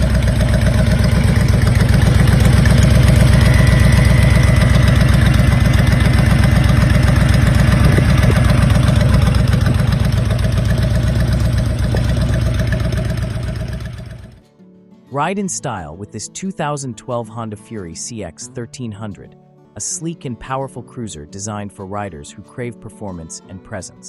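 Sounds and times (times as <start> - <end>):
motorcycle engine idling: 0.0 - 14.4.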